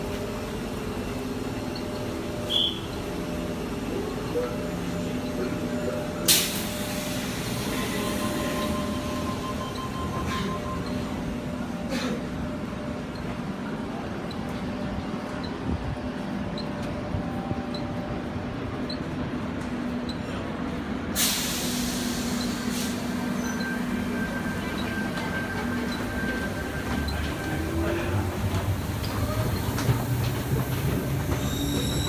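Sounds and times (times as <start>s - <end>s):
electric train humming: 0.0s - 32.0s
loud air hiss: 21.2s - 23.2s.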